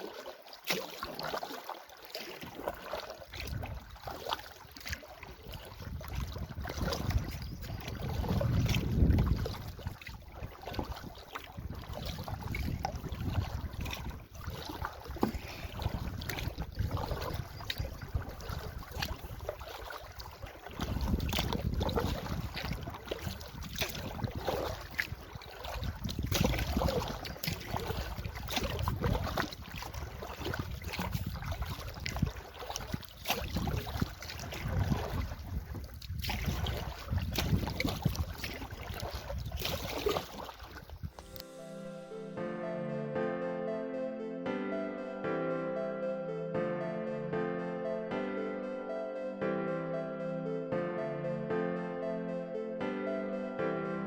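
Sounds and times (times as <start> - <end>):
water splashing around canoe: 0.0 - 42.4
wind buffeting microphone: 3.4 - 4.2, 5.3 - 41.5.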